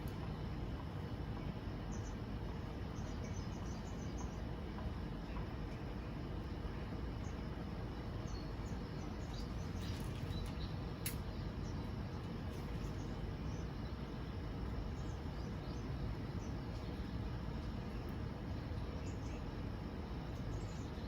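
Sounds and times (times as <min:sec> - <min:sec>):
outdoor background noise: 0:00.0 - 0:21.0
sharp click: 0:11.0 - 0:11.4.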